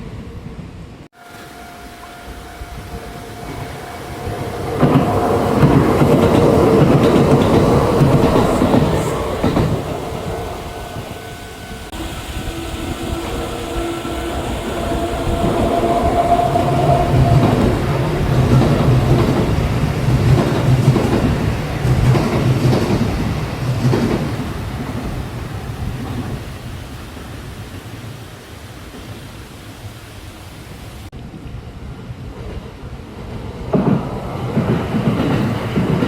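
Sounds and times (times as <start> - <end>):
electric train passing: 0.0 - 36.0
wheels clacking over rail joints: 2.9 - 26.6, 32.2 - 36.0.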